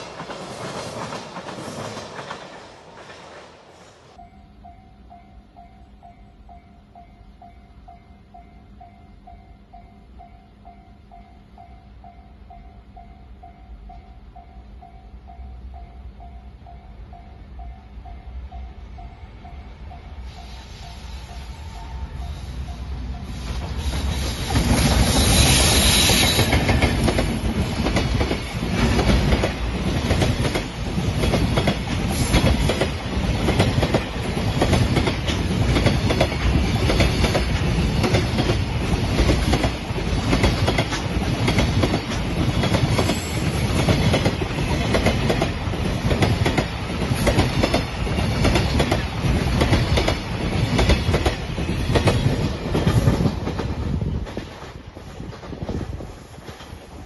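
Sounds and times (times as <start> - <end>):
freight train passing: 0.0 - 57.0.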